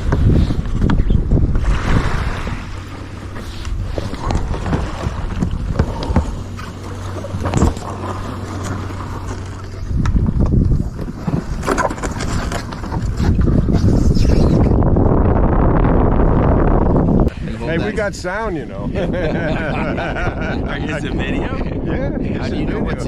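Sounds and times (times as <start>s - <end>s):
water splashes: 0.0s - 14.2s
wind rumbling on microphone: 0.0s - 23.0s.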